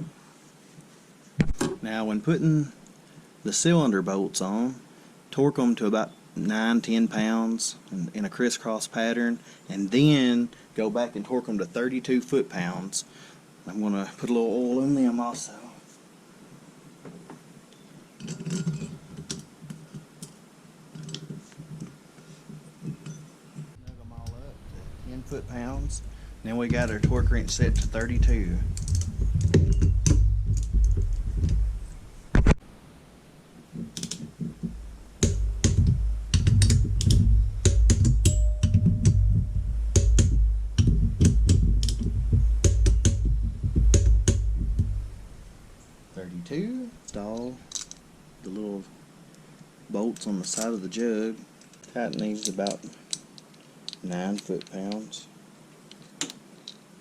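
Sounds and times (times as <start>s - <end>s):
cylinder bolts clicking and knocking: 18.2s - 20.4s, 25.6s - 31.7s, 33.8s - 39.3s, 40.0s - 44.8s, 51.6s - 55.0s
sharp metal ticks: 26.6s - 31.6s, 35.2s - 43.3s.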